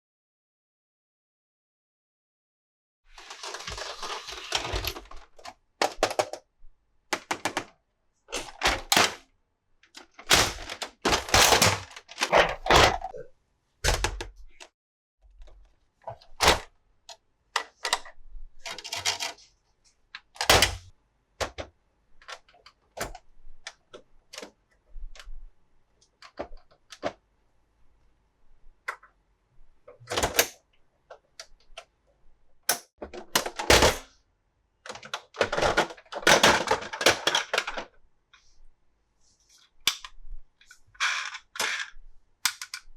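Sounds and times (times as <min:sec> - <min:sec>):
plastic packaging crinkling: 0:03.2 - 0:05.5
hard plastic clicks and snaps: 0:39.9 - 0:40.2, 0:42.4 - 0:42.9.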